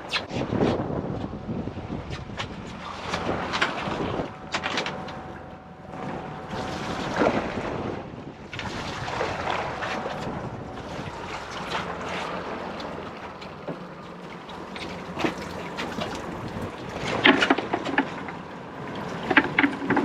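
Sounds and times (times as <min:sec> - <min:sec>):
wind buffeting microphone: 0:00.0 - 0:05.1, 0:05.9 - 0:13.1, 0:15.1 - 0:17.3.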